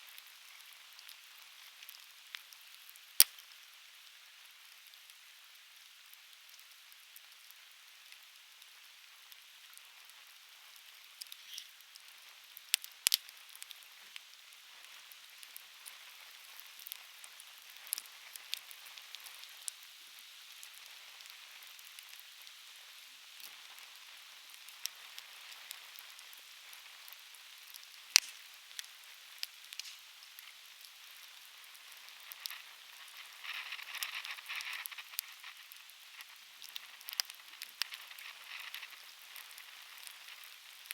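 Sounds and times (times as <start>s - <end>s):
campfire hissing and crackling: 0.0s - 40.9s.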